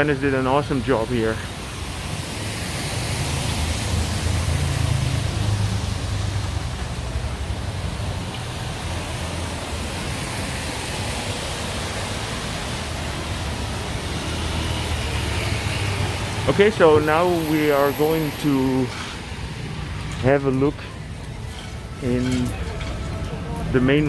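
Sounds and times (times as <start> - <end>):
light rain falling: 0.0 - 24.0
traffic engines humming: 0.0 - 24.0.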